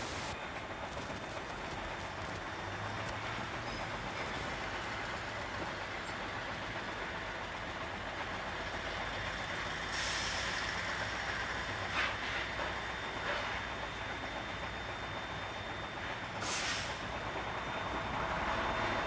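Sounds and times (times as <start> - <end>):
road noise: 0.0 - 15.1
truck engine hum: 0.0 - 19.0
air brake hiss: 9.9 - 10.7, 16.4 - 17.1.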